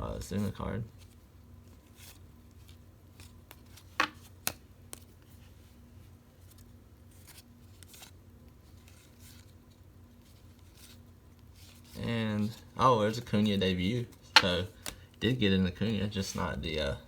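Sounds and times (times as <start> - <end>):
trading cards snapping: 3.2 - 5.1, 14.3 - 15.1
cards ticking together: 12.4 - 15.2.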